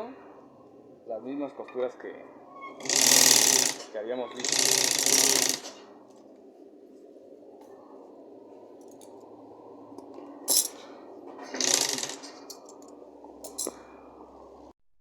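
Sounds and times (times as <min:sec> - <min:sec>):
sewing machine humming: 0:02.8 - 0:05.9, 0:11.4 - 0:12.4.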